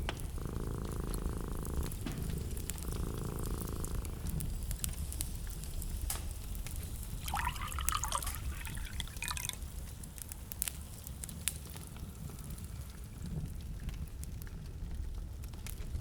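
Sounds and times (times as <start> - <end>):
wood fire crackling: 0.0 - 16.0
wavering bubbling tones: 7.2 - 9.2.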